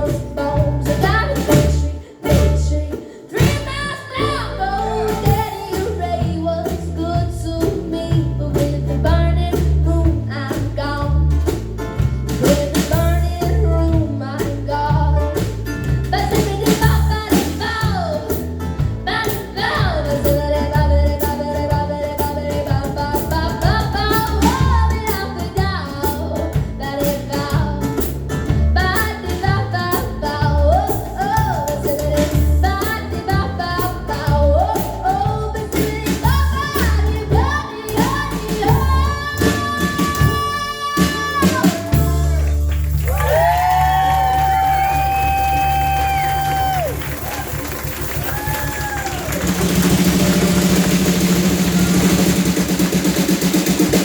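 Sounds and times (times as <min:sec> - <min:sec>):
woman singing: 0:00.0 - 0:42.6
bass line: 0:00.0 - 0:54.0.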